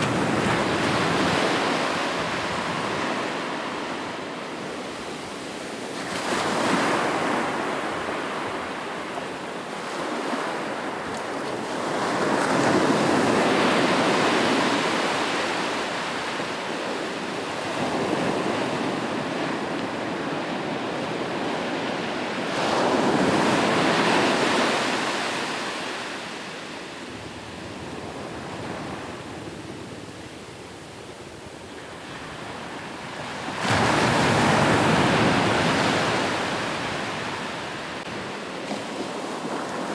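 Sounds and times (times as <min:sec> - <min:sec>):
ocean waves breaking: 0:31.7 - 0:39.9.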